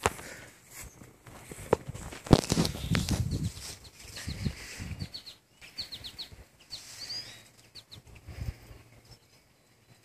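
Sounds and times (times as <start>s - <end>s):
small bird chirping: 2.4s - 10.0s.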